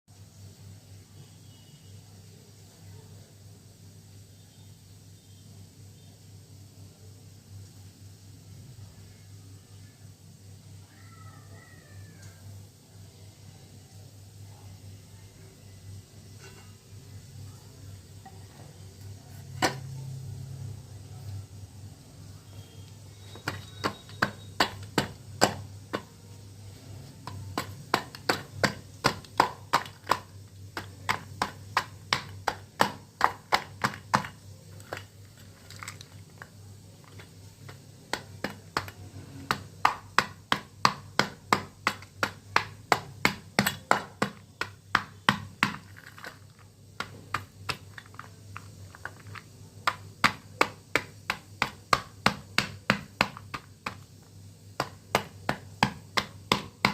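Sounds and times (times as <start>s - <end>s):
brittle pieces crunching: 27.2s - 51.4s.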